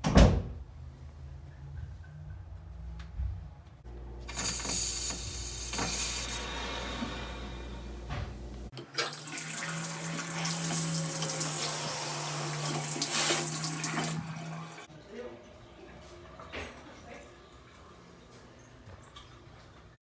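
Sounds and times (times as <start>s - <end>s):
water running from a tap: 4.2s - 6.6s, 9.0s - 14.9s.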